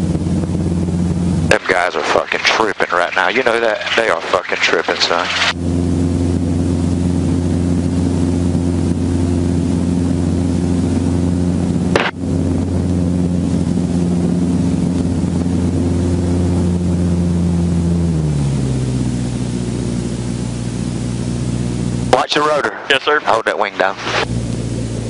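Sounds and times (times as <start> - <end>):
helicopter rotor drone: 0.0 - 25.0
sharp click: 12.0 - 12.2.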